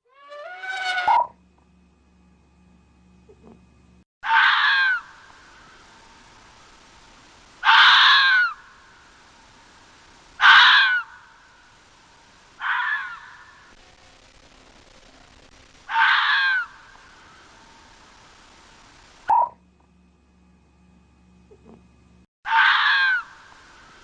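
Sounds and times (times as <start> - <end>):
animal screeching call: 0.1 - 1.3, 4.2 - 5.2, 7.6 - 8.6, 10.4 - 11.2, 12.6 - 13.7, 15.9 - 16.9, 22.5 - 23.5.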